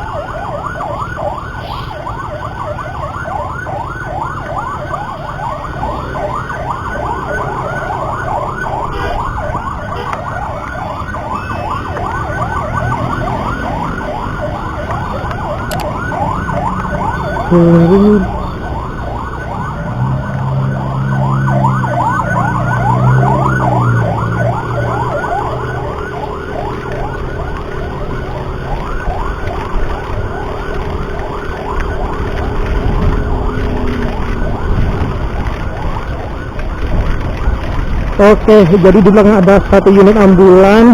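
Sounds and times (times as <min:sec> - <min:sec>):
low vehicle tones: 0:00.0 - 0:40.0
siren yelping: 0:00.0 - 0:40.9
loud horn blast: 0:08.9 - 0:09.2, 0:09.9 - 0:10.4.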